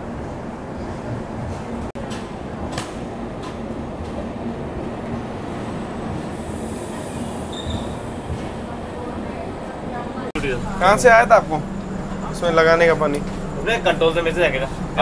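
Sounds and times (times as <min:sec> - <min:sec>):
train wheels rumbling on rails: 0:00.0 - 0:15.0
high wheel squeal: 0:06.3 - 0:08.2.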